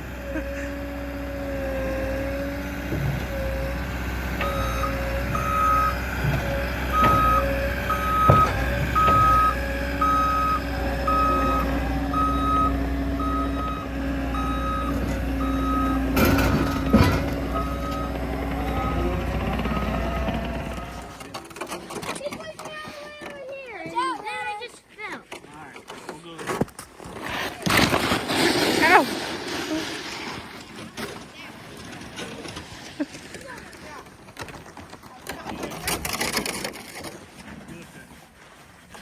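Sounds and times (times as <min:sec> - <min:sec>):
diesel engine running: 0:00.0 - 0:21.6
machine clanks and knocks: 0:04.3 - 0:09.9, 0:14.4 - 0:22.8
reversing alarm beeps: 0:04.4 - 0:20.8.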